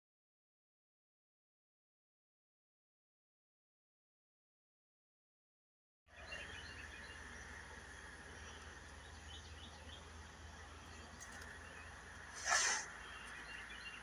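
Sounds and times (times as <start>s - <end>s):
birds chirping: 6.1s - 14.0s
background hiss: 6.2s - 14.0s.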